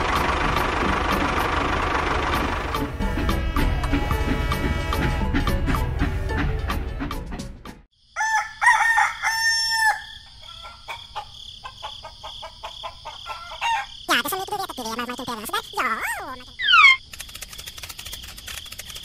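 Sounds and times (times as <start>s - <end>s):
music: 0.0s - 7.9s
high-pitched hum: 1.1s - 6.5s
rooster crowing: 8.1s - 14.0s
short bird calls: 16.0s - 17.0s.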